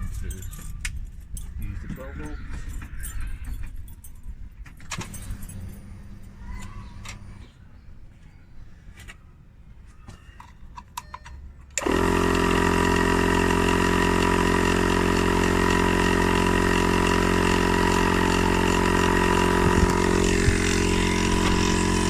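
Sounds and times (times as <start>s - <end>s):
tyre inflator compressor running: 5.0s - 7.5s, 11.8s - 22.0s.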